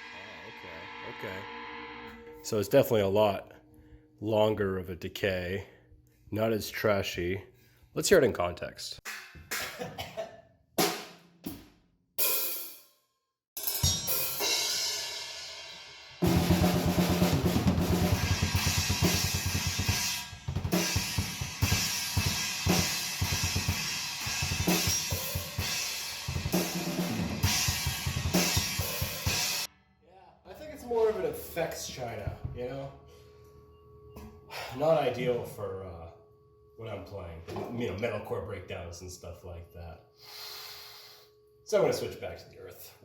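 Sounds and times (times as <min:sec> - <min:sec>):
china cymbal crash: 0:00.0 - 0:02.8, 0:13.6 - 0:16.2
drum kit playing: 0:10.8 - 0:12.8, 0:13.6 - 0:29.7
rapid kick drum strokes: 0:16.2 - 0:29.7.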